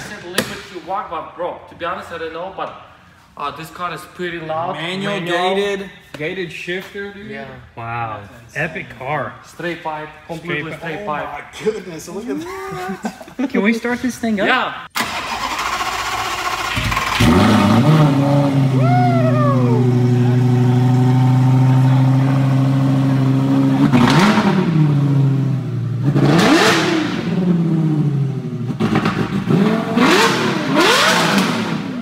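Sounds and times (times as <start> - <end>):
car engine starting and idling: 14.9 - 32.0
engine revs blipped: 15.0 - 32.0.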